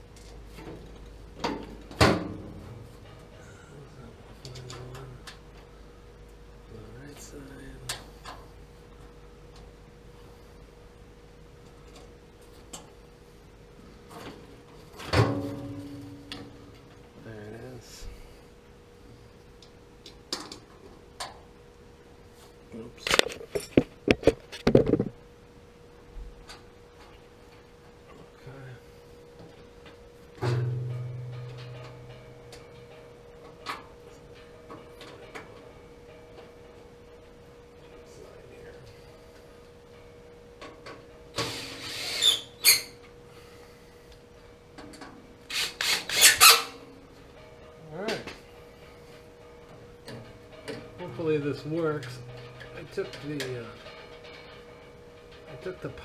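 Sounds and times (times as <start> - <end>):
faint steady hum: 0.0 - 56.0
tools scraping against parts: 41.4 - 43.0, 44.8 - 46.8.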